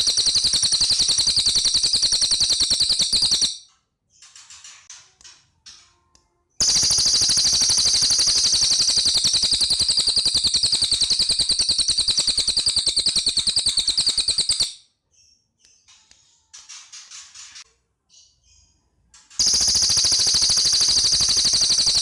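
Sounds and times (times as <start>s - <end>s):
bird rapid rattling call: 0.0s - 3.6s, 6.6s - 14.8s, 19.4s - 22.0s.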